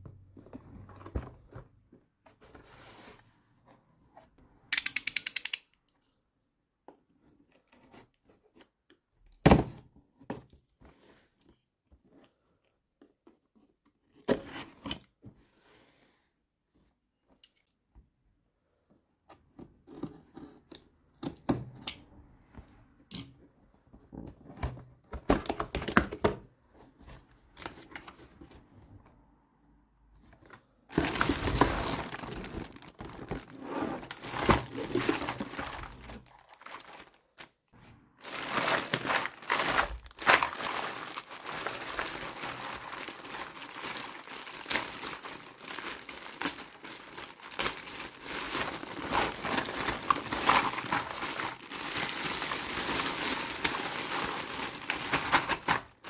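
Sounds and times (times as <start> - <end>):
plastic packaging crinkling: 30.9 - 37.6, 38.2 - 56.0.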